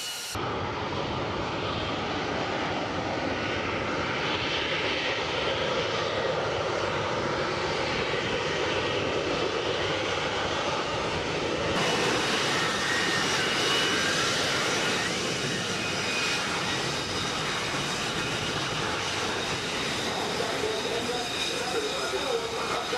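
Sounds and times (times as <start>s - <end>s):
high whine: 0.0s - 0.7s
jet engine roar: 0.0s - 22.9s.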